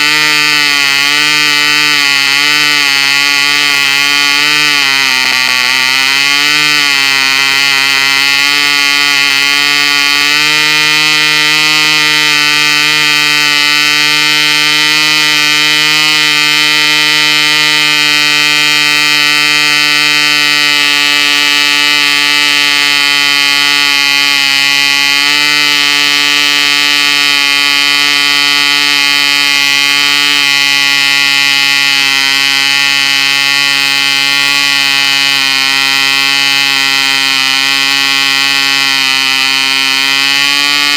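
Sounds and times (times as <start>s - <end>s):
model engine high-pitched whine: 0.0s - 40.9s.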